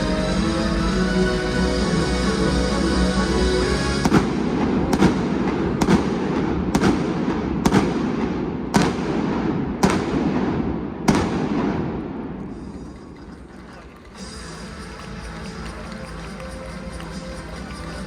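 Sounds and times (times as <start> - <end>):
music: 0.0 - 4.3, 13.3 - 18.0
fireworks bangs: 4.0 - 13.5
fireworks rumbling crackle: 4.0 - 18.0.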